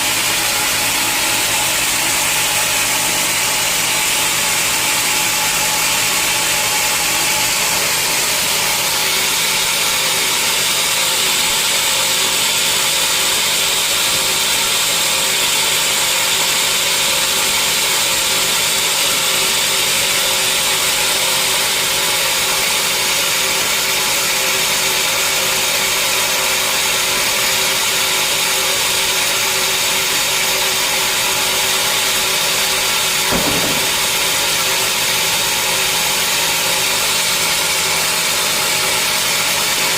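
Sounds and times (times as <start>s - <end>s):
sawmill saw cutting log: 0.0s - 39.9s
brief knock: 33.2s - 35.0s.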